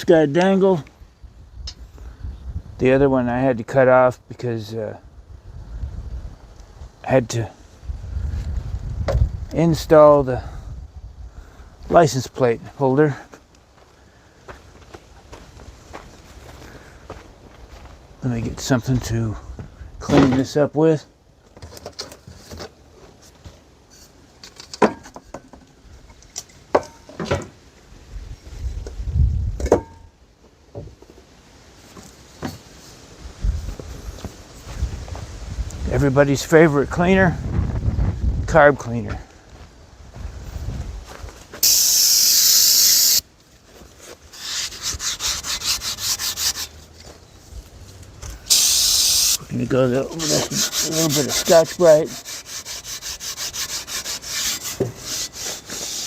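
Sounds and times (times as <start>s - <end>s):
aerosol spray hiss: 41.6s - 43.2s, 48.5s - 49.4s
quick scrubbing: 48.5s - 56.0s.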